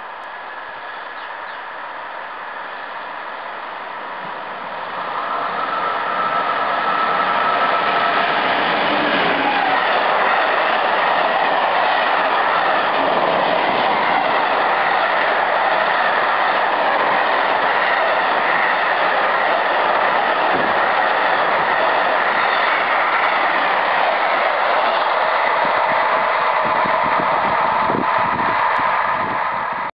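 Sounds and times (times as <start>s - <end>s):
freight train rolling past: 0.0s - 29.9s.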